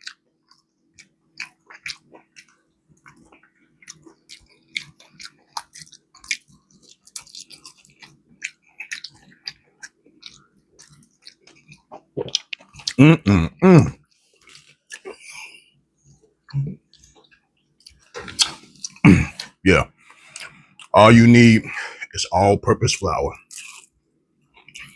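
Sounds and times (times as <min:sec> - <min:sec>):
chewing crispy chicken: 0:00.0 - 0:21.2, 0:23.0 - 0:24.9.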